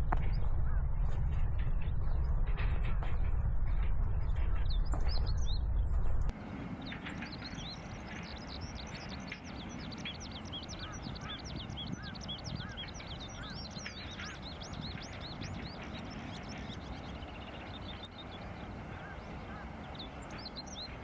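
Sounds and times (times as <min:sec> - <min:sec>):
flock of birds chattering: 0:06.3 - 0:21.0
lower bird call: 0:06.3 - 0:21.0.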